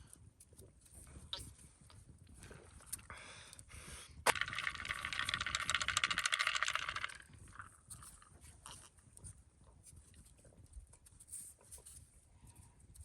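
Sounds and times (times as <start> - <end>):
fast metallic rattling: 4.3 - 8.2.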